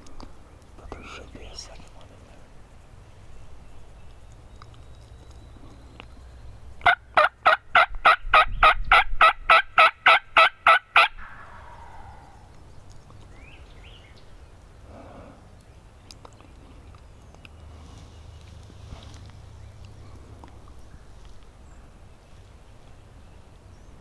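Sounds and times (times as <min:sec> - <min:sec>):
faint chirps: 0:00.8 - 0:06.7, 0:11.2 - 0:18.6
turkey yelping: 0:06.8 - 0:12.5.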